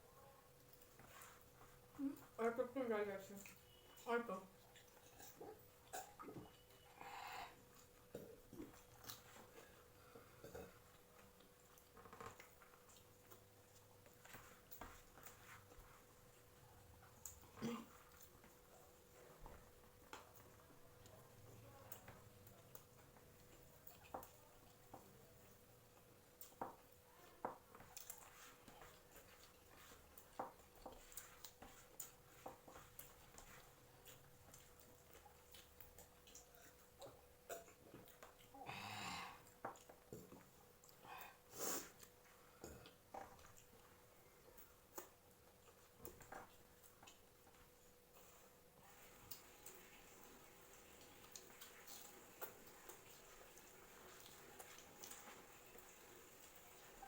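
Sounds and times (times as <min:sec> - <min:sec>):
quiet chewing: 0:00.1 - 0:57.0
clicks and taps of eating: 0:10.2 - 0:16.0, 0:19.4 - 0:38.5, 0:39.4 - 0:41.0, 0:42.0 - 0:48.4.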